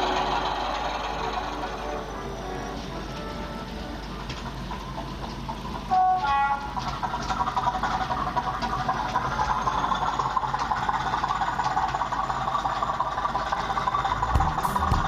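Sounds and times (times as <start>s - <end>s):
model train rattling on track: 0.0s - 15.0s
low knocking: 14.1s - 15.0s.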